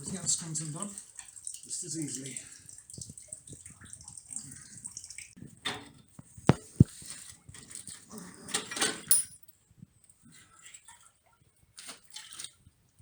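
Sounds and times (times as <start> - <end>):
metal clinks and rattles: 7.6 - 9.6
sharp metal clanks: 9.0 - 9.4.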